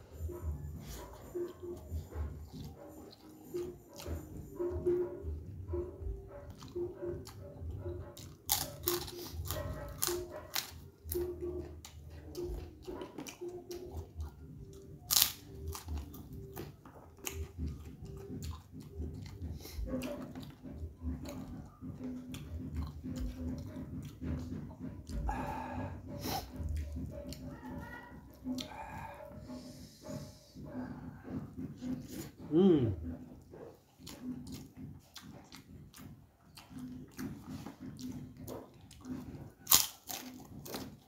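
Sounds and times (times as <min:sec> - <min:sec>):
man crunching crackers: 0:08.2 - 0:11.2, 0:15.0 - 0:17.5, 0:39.0 - 0:41.0.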